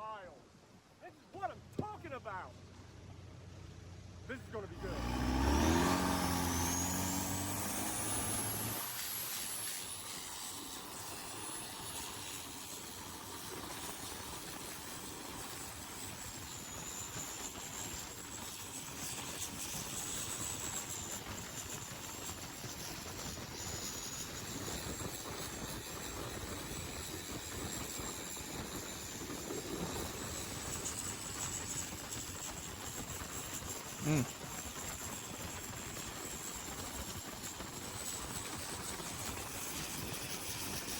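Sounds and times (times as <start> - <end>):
boat diesel engine at full throttle: 2.5 - 18.1.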